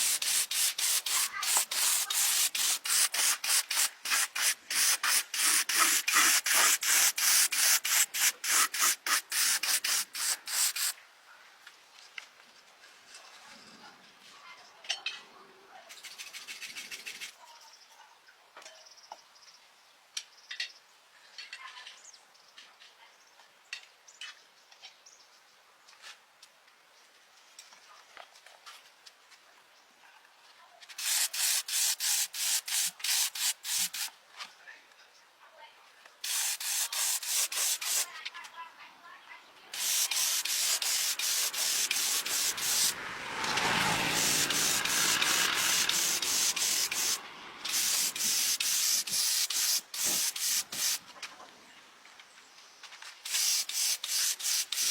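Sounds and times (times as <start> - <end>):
hand scrubbing on hard surface: 0.0 - 10.9.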